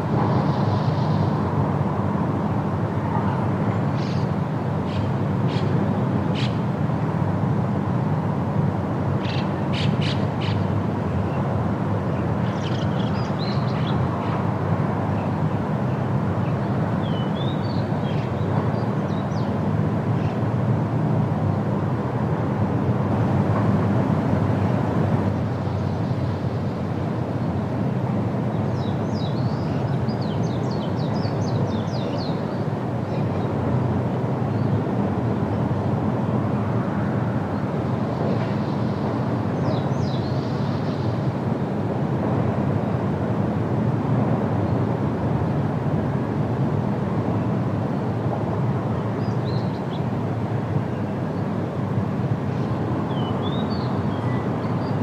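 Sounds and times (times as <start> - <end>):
wind blowing through trees: 0.0 - 55.0
small birds chirping: 52.6 - 55.0.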